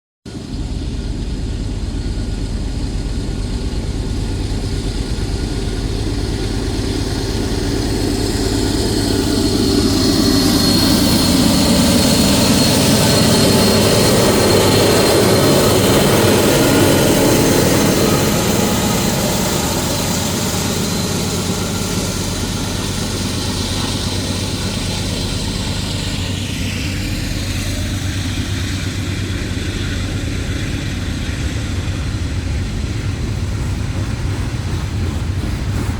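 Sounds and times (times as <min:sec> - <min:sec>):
diesel locomotive engine drone: 0:00.3 - 0:35.9.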